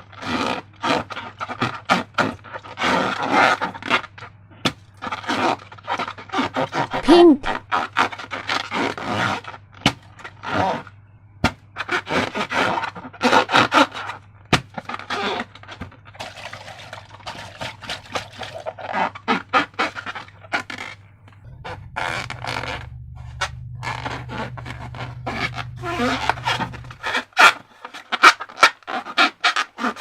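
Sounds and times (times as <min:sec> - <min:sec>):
slime squelching: 0:05.0 - 0:08.3, 0:16.1 - 0:30.0.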